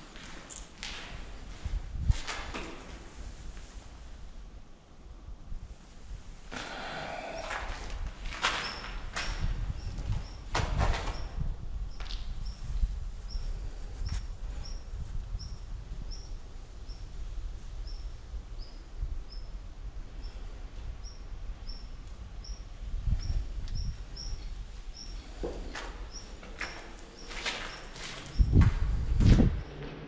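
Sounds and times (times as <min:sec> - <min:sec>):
footsteps scuffing on concrete: 0:25.3 - 0:29.6.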